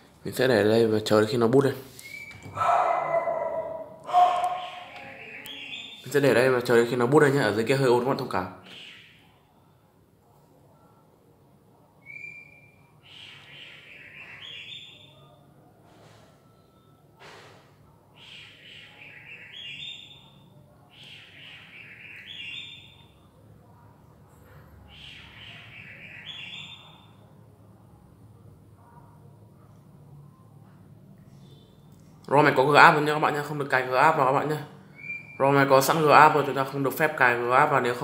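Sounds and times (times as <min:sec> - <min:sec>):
bird singing rising phrase: 0:04.2 - 0:06.1.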